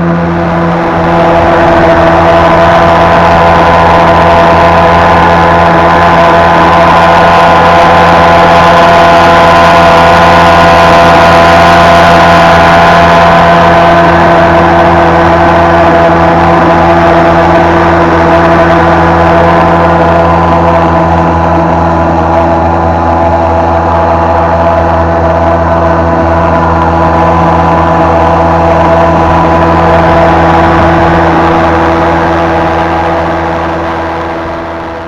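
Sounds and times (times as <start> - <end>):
outboard motor running: 0.0 - 35.0.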